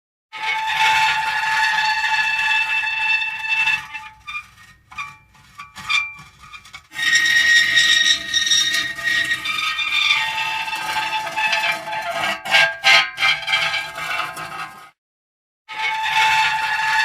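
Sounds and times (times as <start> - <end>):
metal creaking: 3.9 - 14.8.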